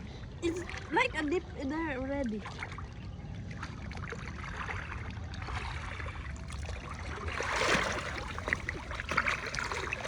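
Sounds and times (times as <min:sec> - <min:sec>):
sea water sloshing and lapping: 0:00.0 - 0:10.0
small splashes: 0:02.3 - 0:10.0.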